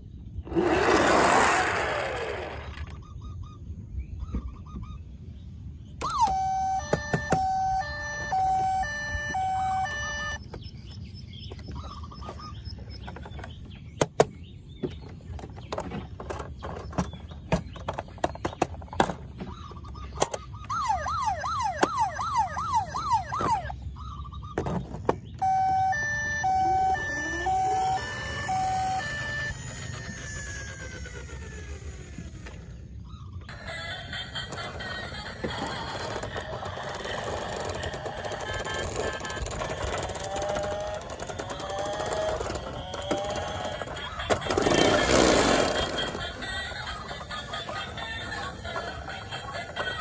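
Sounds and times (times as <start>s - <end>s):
fast rising yelp siren: 6.0s - 10.4s, 20.6s - 23.8s, 25.4s - 32.3s
electronic two-tone siren: 6.0s - 10.5s, 20.6s - 23.8s, 25.4s - 32.4s, 36.6s - 50.0s
plastic toys clicking and knocking: 13.0s - 19.4s, 34.4s - 50.0s.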